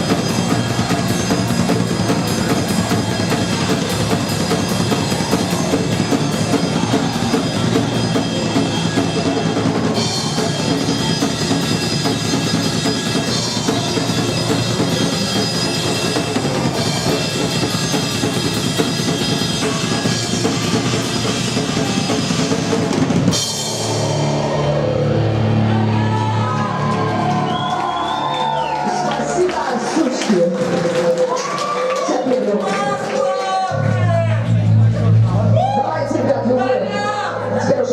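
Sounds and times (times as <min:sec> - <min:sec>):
cymbals ringing: 0:00.0 - 0:25.2
rock band playing live: 0:00.0 - 0:31.6.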